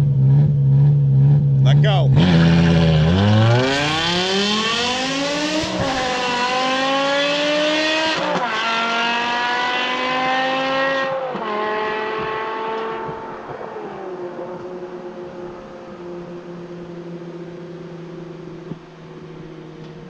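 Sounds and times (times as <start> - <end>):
car engine accelerating hard: 0.0 - 20.0
rear tyres spinning: 2.2 - 8.3.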